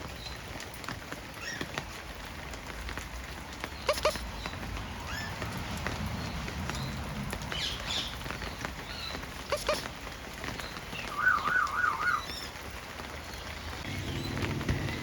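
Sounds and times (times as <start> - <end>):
parrots chirping: 3.9 - 4.2, 9.4 - 9.9
parrot warbling call: 11.1 - 12.3.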